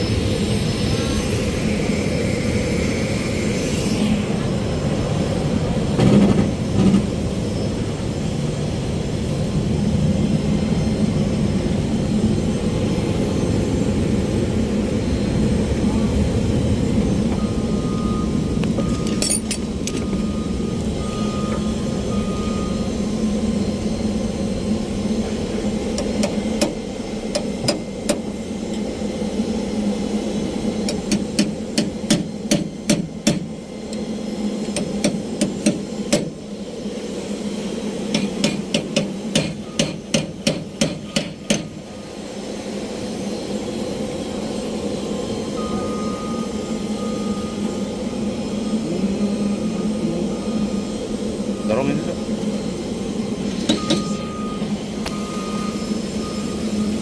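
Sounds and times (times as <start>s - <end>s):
low machinery drone: 0.0s - 57.0s
hammer tapping on metal: 30.9s - 33.5s, 38.1s - 41.7s.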